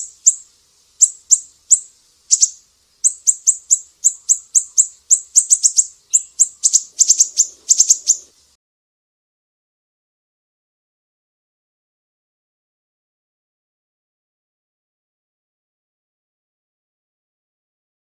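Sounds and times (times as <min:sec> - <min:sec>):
bird singing sharp high notes: 0:01.0 - 0:08.3.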